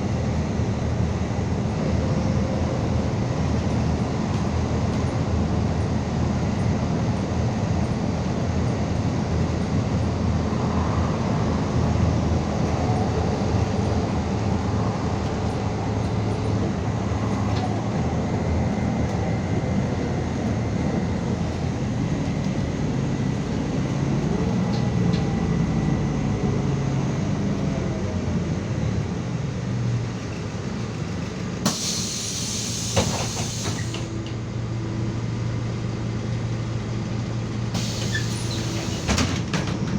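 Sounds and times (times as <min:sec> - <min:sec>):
bus engine drone: 0:00.0 - 0:39.9
road rumble: 0:00.0 - 0:39.9
loud hiss: 0:31.6 - 0:34.2, 0:37.8 - 0:39.2.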